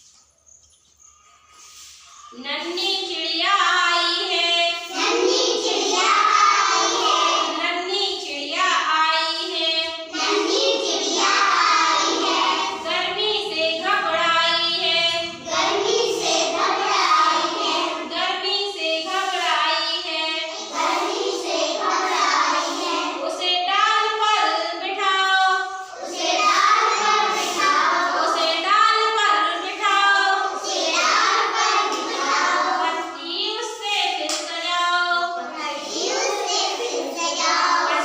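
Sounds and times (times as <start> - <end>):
children singing in chorus: 4.8 - 7.5, 10.1 - 12.8, 15.2 - 18.1, 20.4 - 23.2, 25.6 - 28.6, 30.2 - 33.0, 35.4 - 38.0.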